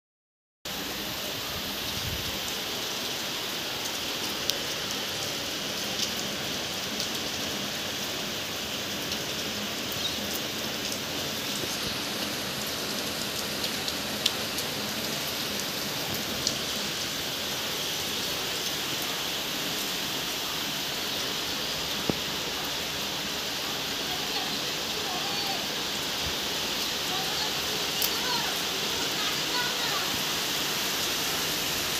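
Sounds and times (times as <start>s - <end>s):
heavy rain falling: 0.7s - 31.9s
loud raindrops tapping: 8.9s - 17.1s, 21.8s - 23.4s, 24.0s - 31.9s.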